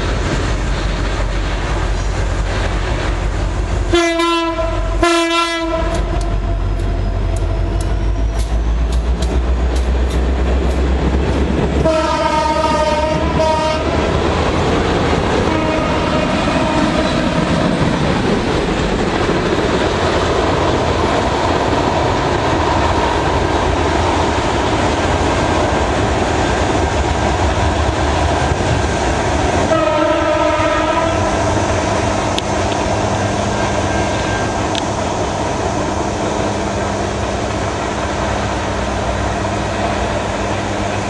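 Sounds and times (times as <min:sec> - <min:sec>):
freight train rolling past: 0:00.0 - 0:41.0
locomotive horn: 0:03.9 - 0:06.7, 0:11.8 - 0:14.0, 0:15.4 - 0:17.2, 0:29.7 - 0:31.4
wheels clicking over rail joints: 0:05.8 - 0:12.4.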